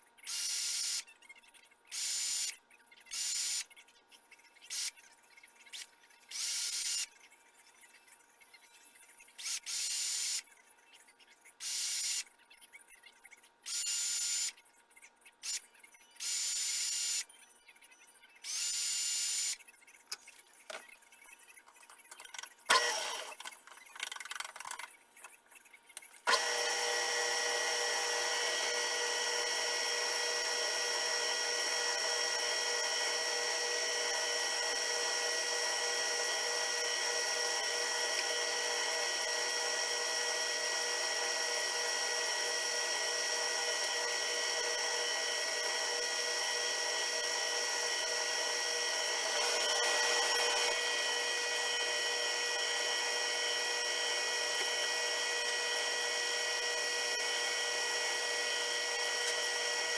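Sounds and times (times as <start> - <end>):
power tool whining: 22.7 - 23.5, 26.3 - 59.9.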